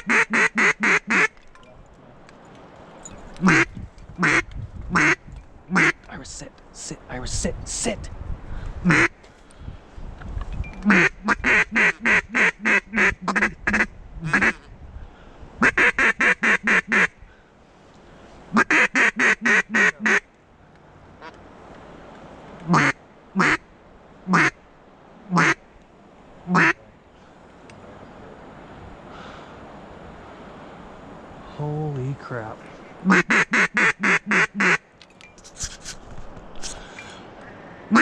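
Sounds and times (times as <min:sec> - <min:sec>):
duck call quacking: 0:00.0 - 0:01.3, 0:03.4 - 0:06.0, 0:08.9 - 0:09.2, 0:10.8 - 0:14.7, 0:15.6 - 0:17.1, 0:18.5 - 0:20.2, 0:22.7 - 0:23.6, 0:24.3 - 0:24.6, 0:25.3 - 0:25.6, 0:26.5 - 0:26.8, 0:33.0 - 0:34.8.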